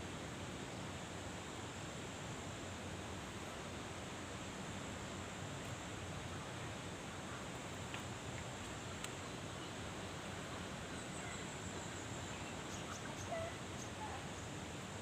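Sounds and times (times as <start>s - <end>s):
flowing canal water: 0.0s - 12.6s
faint bird chirps: 10.9s - 14.5s.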